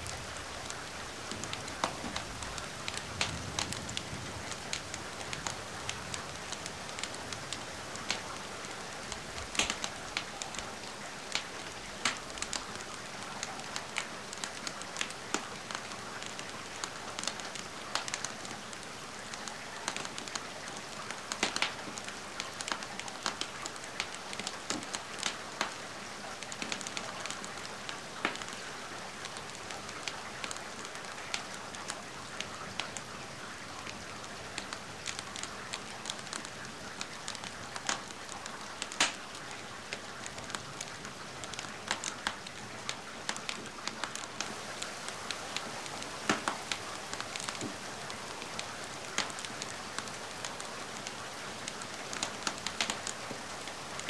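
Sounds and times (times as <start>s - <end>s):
rain hiss: 0.0s - 54.0s
wood fire crackling: 0.0s - 54.0s.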